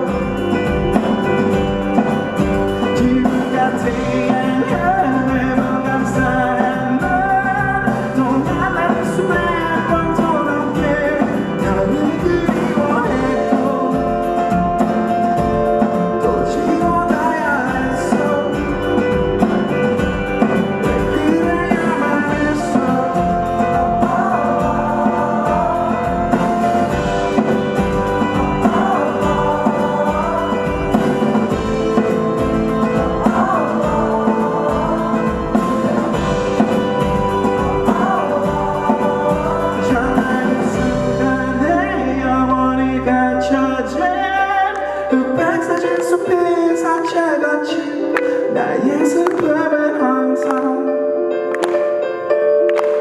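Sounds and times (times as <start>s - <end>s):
drum beat: 0.0s - 41.4s
electric guitar: 0.0s - 53.0s.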